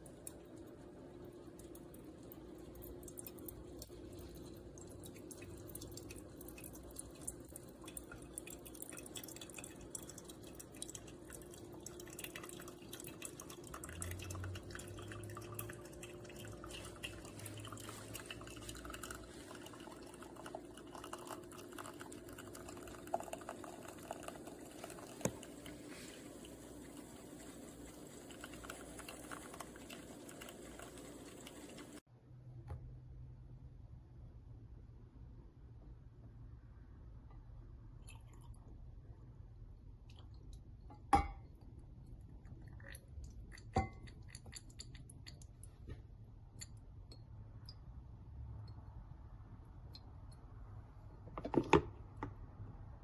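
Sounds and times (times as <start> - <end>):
coffee dripping into a cup: 0.0 - 32.0, 38.0 - 38.8, 40.0 - 45.7, 46.6 - 49.0
espresso machine brewing: 0.0 - 32.0.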